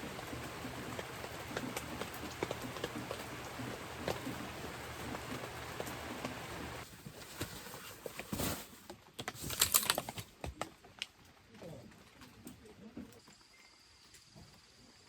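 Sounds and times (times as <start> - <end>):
rain pattering: 0.0 - 6.8.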